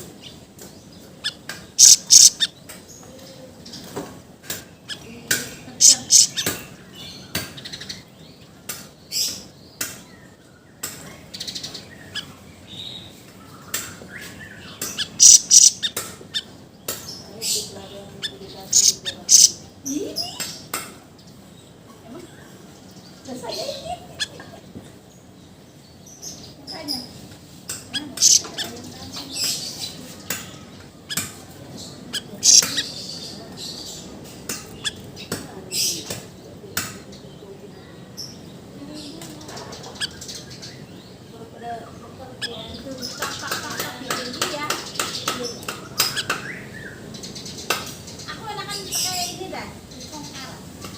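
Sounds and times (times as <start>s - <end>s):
bird chirping: 0.0s - 50.9s
songbird squawking calls: 1.0s - 2.7s, 4.7s - 8.1s, 11.2s - 20.7s, 27.8s - 36.3s.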